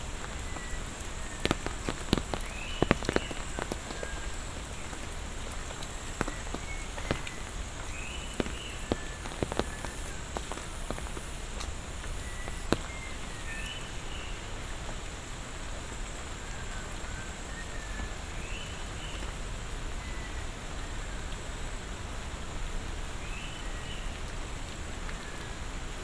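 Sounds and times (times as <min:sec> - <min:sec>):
raindrops ticking: 0:00.0 - 0:20.5
rain falling: 0:00.0 - 0:26.0.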